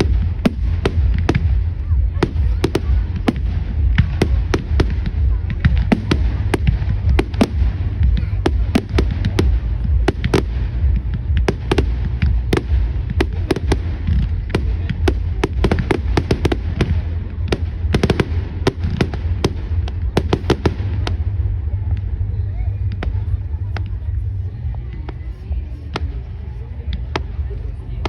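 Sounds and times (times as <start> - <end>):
fireworks cracking and popping: 0.0 - 21.5
low rumble: 0.0 - 28.0.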